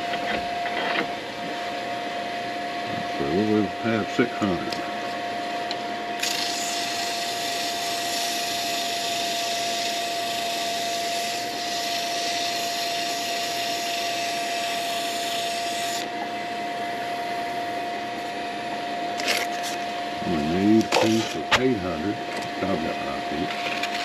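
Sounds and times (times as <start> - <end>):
wood lathe whining: 6.1 - 24.0.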